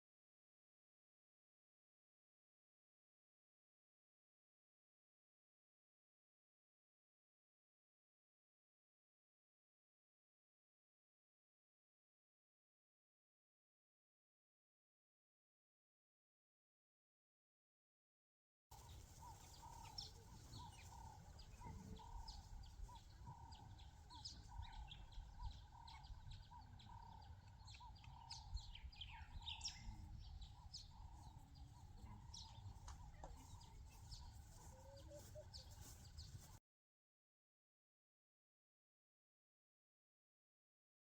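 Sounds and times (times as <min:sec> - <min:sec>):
birds chirping: 0:18.7 - 0:36.6.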